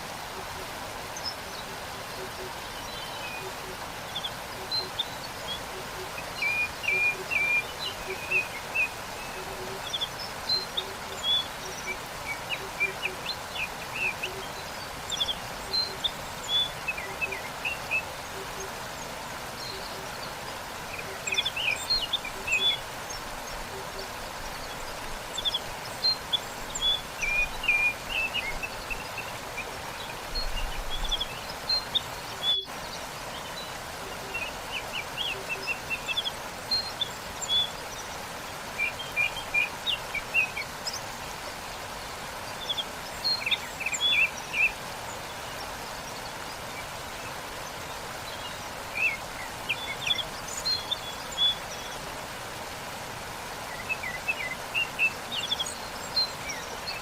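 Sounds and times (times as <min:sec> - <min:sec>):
songbirds chirping: 0:00.0 - 0:57.0
waterfall rushing: 0:00.0 - 0:57.0.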